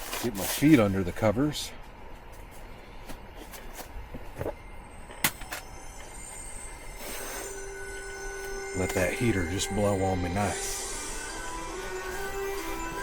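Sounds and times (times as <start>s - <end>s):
bedding clicks and rustles: 0.0s - 5.7s
heater fan hissing: 5.4s - 13.0s.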